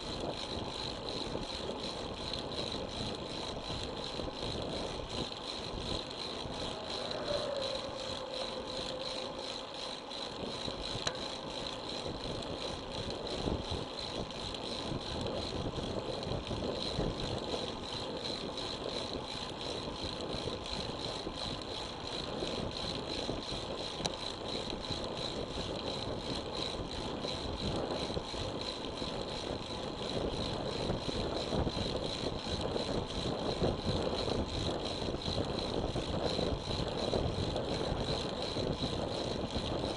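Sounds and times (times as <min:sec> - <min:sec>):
bicycle rattling: 0:00.0 - 0:39.9
bicycle tyre noise: 0:00.0 - 0:39.9
wind noise: 0:00.0 - 0:39.9.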